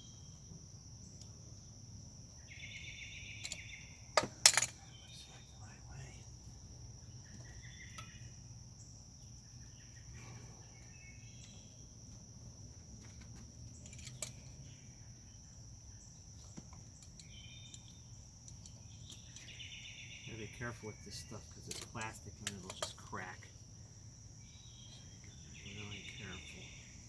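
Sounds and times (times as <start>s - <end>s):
plastic parts clicking and knocking: 21.7s - 23.1s.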